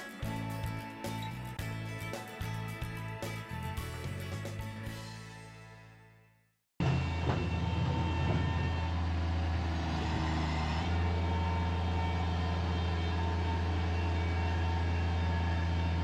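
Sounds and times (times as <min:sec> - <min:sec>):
heavy equipment engine running: 0:06.8 - 0:16.0.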